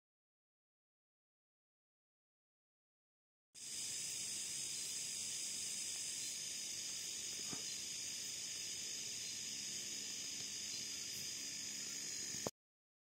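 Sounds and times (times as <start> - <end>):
night insects chirping: 3.6 - 12.5.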